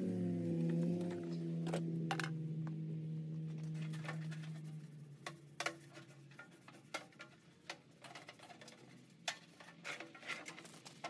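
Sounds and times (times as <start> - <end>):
low hum: 0.0 - 6.9.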